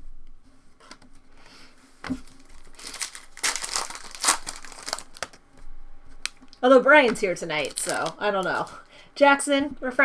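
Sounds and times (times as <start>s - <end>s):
foil wrapper crinkling and tearing: 2.2s - 5.4s, 7.2s - 8.9s.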